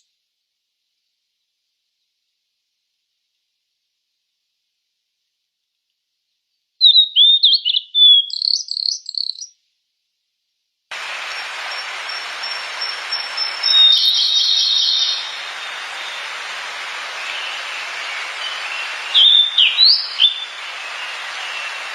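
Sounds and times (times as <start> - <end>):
bird singing warbled whistles: 6.8 - 9.5, 11.0 - 21.9
steady hiss: 10.9 - 21.9
thin high whistled notes: 10.9 - 21.9.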